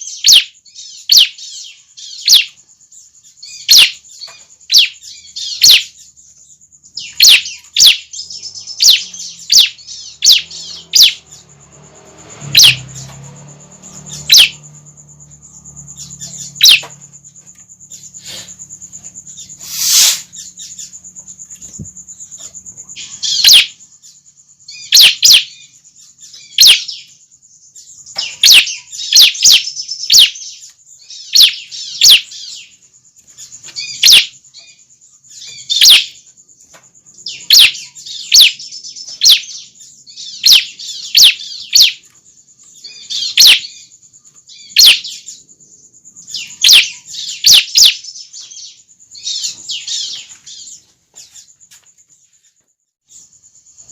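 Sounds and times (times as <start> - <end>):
bird high rapid chirps: 0.0 - 53.9.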